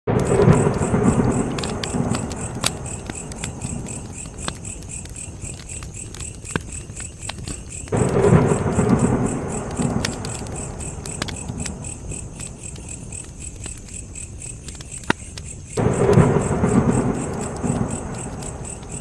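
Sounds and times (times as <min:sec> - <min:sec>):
low rumble: 0:00.1 - 0:04.4, 0:07.9 - 0:13.2, 0:15.8 - 0:19.0
wood fire crackling and popping: 0:00.1 - 0:19.0.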